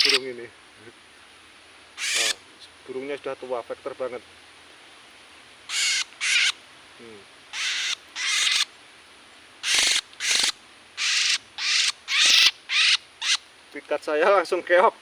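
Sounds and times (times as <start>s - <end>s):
bird giving harsh rasping calls: 0.0s - 0.3s, 2.0s - 2.4s, 5.7s - 6.6s, 7.5s - 8.7s, 9.6s - 13.4s.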